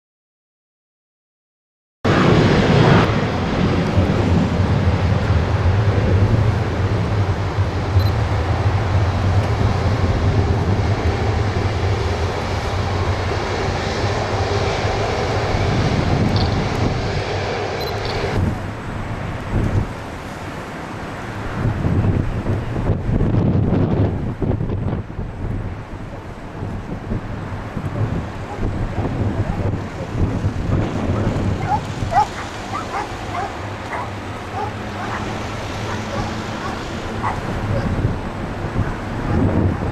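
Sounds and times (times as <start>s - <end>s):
jet engines at takeoff power: 2.1s - 39.9s.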